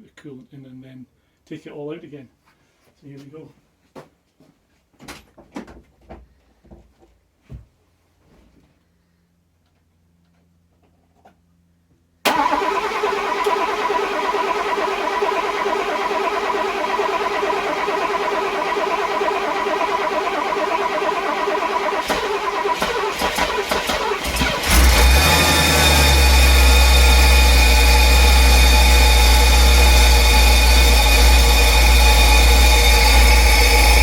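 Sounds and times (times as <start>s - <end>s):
car engine running: 12.3s - 34.0s
starter motor cranking: 12.3s - 34.0s.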